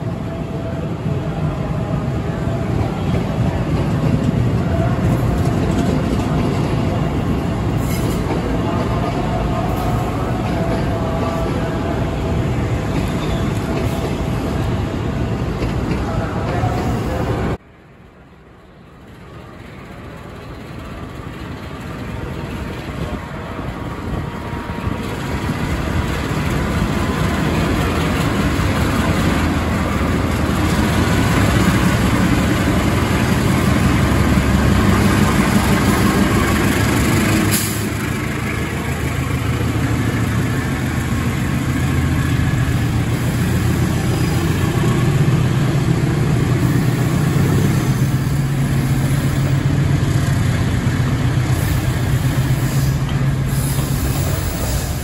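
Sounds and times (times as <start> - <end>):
freight wagons rumbling over rails: 0.0 - 17.6, 18.7 - 55.0
diesel locomotive engines: 0.0 - 55.0.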